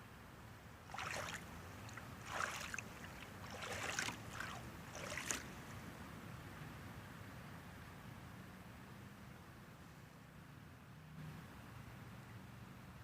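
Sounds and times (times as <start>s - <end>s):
paddle splashing in water: 0.8s - 5.8s.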